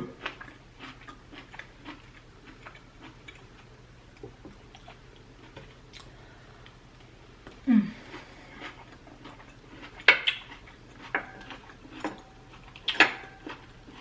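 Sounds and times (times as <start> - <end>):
wet chewing and mouth smacks: 0.2 - 14.0
low voice hum: 7.5 - 8.6.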